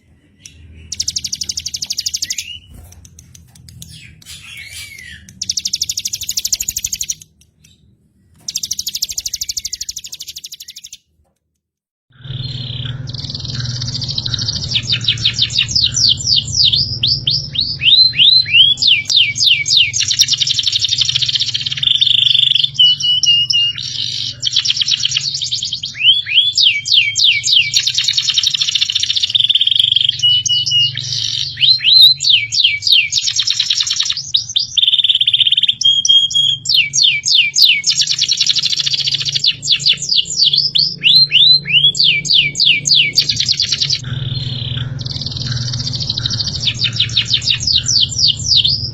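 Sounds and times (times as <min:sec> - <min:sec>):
recorded songbird song: 0:00.0 - 0:11.2, 0:12.1 - 0:48.9
steady low hum: 0:12.1 - 0:19.9, 0:39.5 - 0:48.9.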